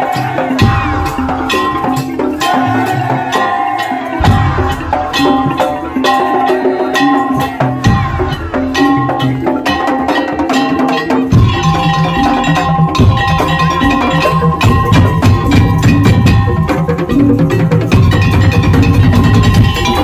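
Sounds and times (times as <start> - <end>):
percussion ensemble playing: 0.0 - 20.0
heavy drum hits: 4.2 - 5.7.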